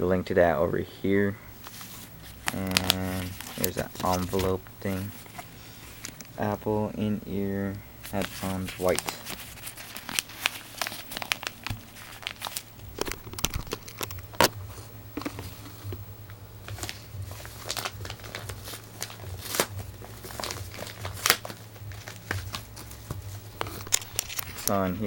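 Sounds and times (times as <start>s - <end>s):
low hum: 0.0s - 25.0s
packaging snaps: 1.6s - 4.6s, 8.1s - 14.6s, 16.7s - 24.8s
packaging crinkling: 1.6s - 6.5s, 8.0s - 24.9s.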